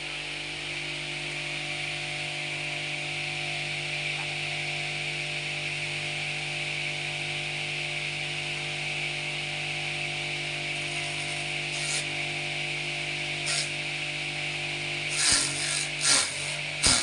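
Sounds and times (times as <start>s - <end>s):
small engine running: 10.5s - 17.0s.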